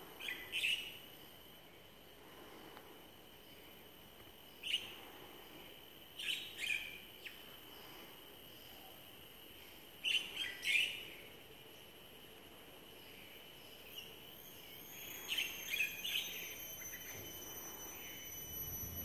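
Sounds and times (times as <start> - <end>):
faint high whine: 0.0 - 19.0
birds chirping: 13.6 - 19.0.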